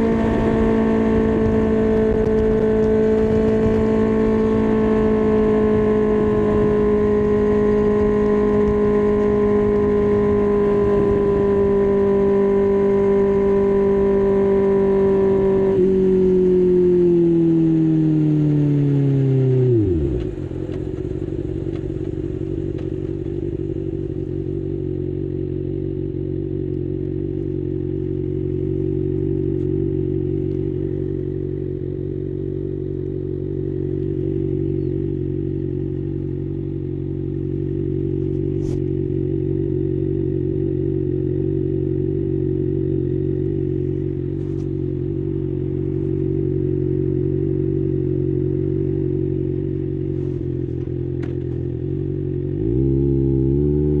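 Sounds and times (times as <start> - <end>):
motorcycle engine revving down to idle: 0.0 - 54.0.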